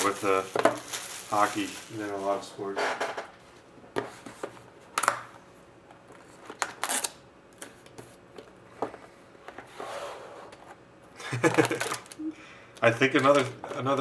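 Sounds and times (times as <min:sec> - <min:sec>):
cards and packaging rustling: 0:00.0 - 0:02.5, 0:11.3 - 0:12.2, 0:13.0 - 0:14.0
soft scraping hiss: 0:00.0 - 0:02.8.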